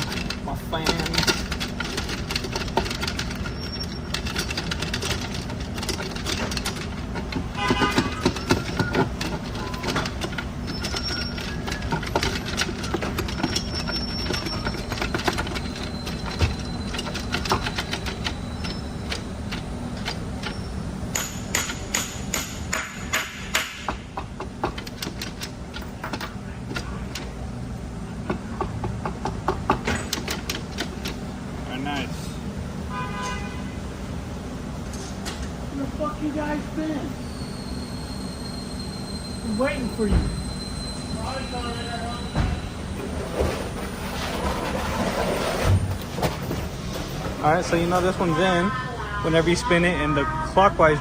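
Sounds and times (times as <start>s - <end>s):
metal parts clicking and knocking: 0.0s - 27.4s, 28.3s - 31.2s
fan humming: 0.0s - 51.0s.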